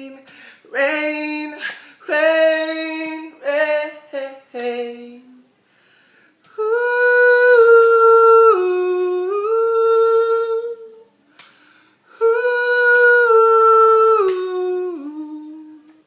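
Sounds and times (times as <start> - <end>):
person humming a melody: 6.5 - 11.1, 12.1 - 16.0.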